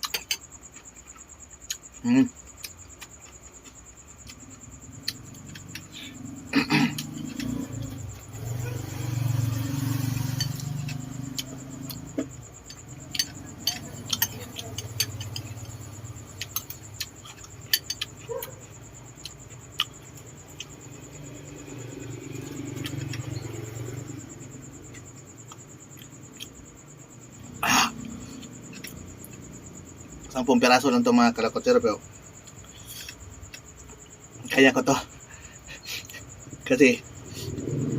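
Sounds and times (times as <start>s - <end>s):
chewing: 6.8s - 24.2s, 27.9s - 29.6s.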